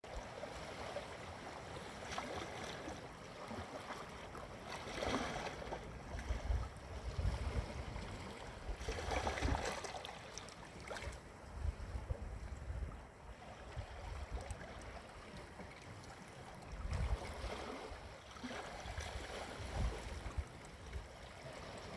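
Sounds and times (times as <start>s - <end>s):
wind rumble on microphone: 4.8s - 10.0s, 10.9s - 15.7s, 16.6s - 21.9s.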